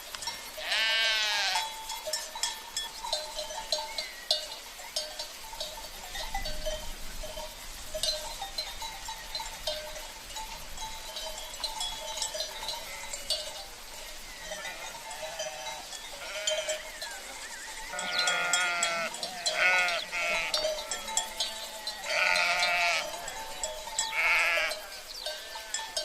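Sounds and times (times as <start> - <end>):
livestock bells clanking: 0.0 - 26.0
sheep bleating: 0.6 - 1.7, 14.6 - 16.8, 17.9 - 25.8.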